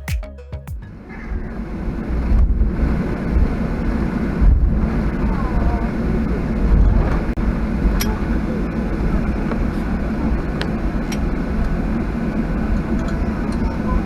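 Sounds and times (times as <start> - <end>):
music track: 0.0 - 1.4.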